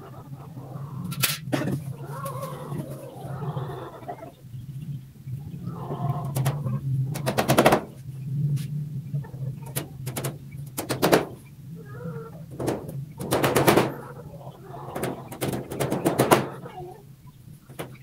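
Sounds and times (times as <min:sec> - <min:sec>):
steady low hum: 0:00.0 - 0:18.0
rapid clicking knocks: 0:06.3 - 0:08.0, 0:09.6 - 0:11.5, 0:12.5 - 0:14.2, 0:14.9 - 0:16.7, 0:17.6 - 0:18.0.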